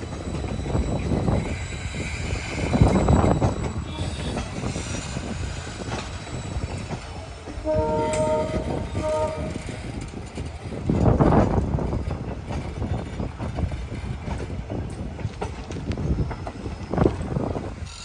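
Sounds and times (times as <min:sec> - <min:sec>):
train rumbling: 0:00.0 - 0:18.0
locomotive horn: 0:07.6 - 0:09.8.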